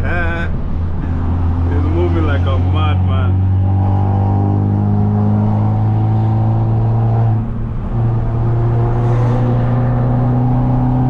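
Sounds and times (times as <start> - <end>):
car engine droning: 0.0 - 11.0.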